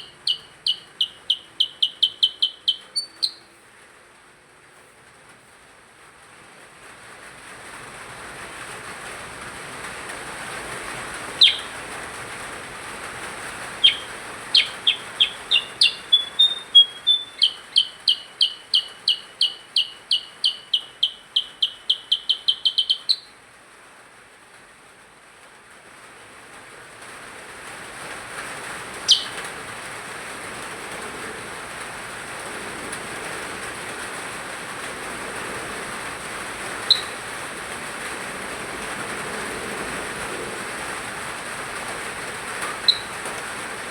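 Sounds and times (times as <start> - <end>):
bird singing repeated chirps: 0.0 - 3.5, 11.4 - 11.8, 13.8 - 23.3, 29.0 - 29.4, 36.9 - 37.3, 42.8 - 43.2.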